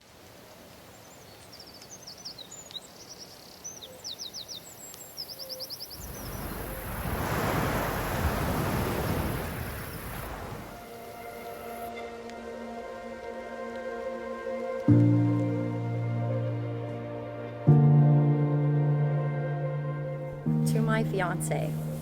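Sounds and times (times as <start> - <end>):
birds chirping: 0.9 - 11.9.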